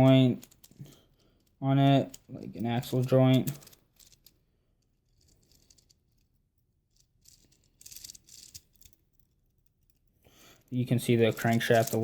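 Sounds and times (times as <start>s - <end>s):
plastic parts rattling and clicking: 0.0s - 4.4s, 6.9s - 10.0s, 10.6s - 12.0s.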